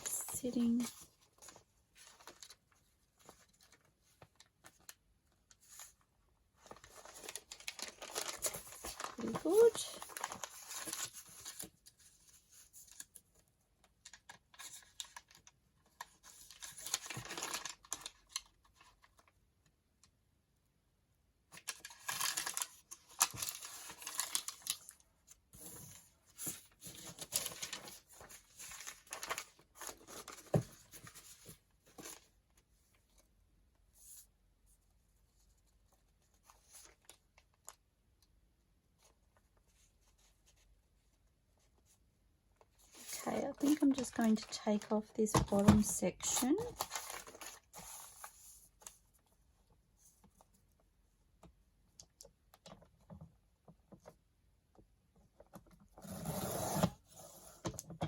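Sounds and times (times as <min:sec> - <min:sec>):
paper rustling and crinkling: 0:00.0 - 0:19.4, 0:21.5 - 0:33.3, 0:35.1 - 0:37.8, 0:42.6 - 0:50.8.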